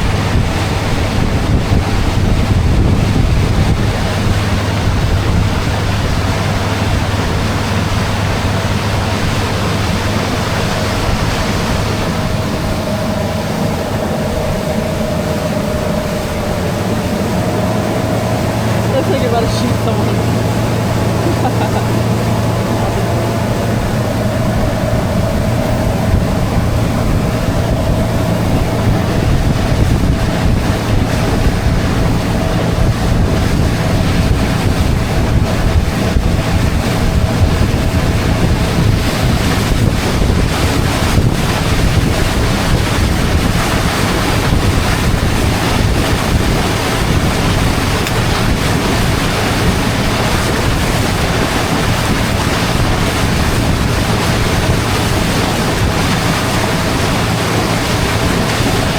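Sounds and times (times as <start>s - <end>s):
motorboat engine running: 0.0s - 58.9s
water rushing past hull: 0.0s - 58.9s
wind buffeting microphone: 0.0s - 58.9s.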